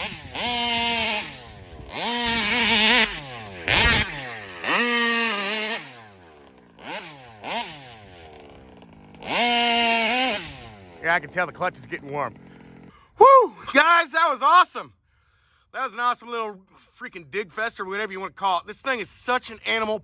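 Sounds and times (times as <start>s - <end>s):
two-stroke engine revving: 0.0s - 13.1s.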